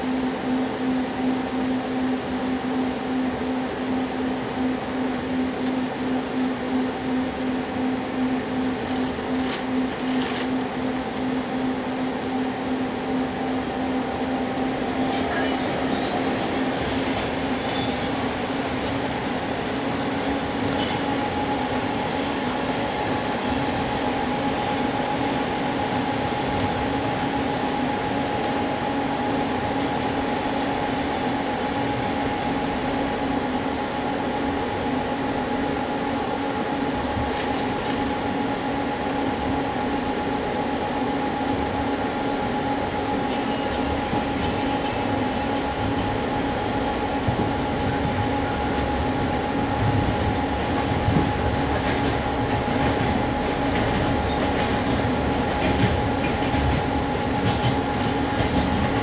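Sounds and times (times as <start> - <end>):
train rumble and wheel noise: 0.0 - 59.0.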